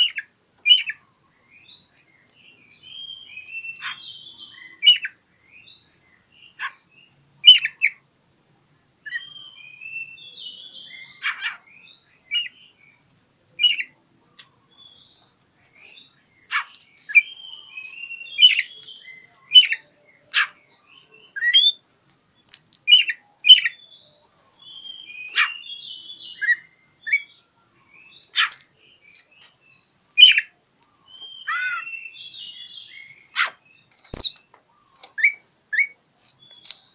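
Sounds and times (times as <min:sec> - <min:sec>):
bird chirps: 0:00.0 - 0:08.0, 0:09.0 - 0:36.9
bird singing whistled phrases: 0:02.8 - 0:05.8, 0:09.1 - 0:12.6, 0:17.1 - 0:21.8, 0:22.9 - 0:28.5, 0:30.2 - 0:30.5, 0:31.1 - 0:33.5, 0:34.1 - 0:34.4.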